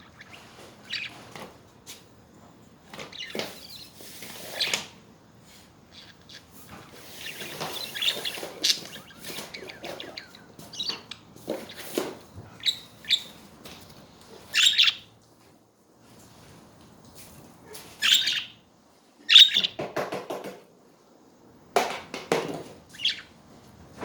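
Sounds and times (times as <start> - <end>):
budgerigars chirping: 0.0 - 1.2, 3.0 - 4.7, 5.9 - 13.5, 14.4 - 15.1, 18.0 - 18.6, 19.3 - 19.8, 22.9 - 23.3.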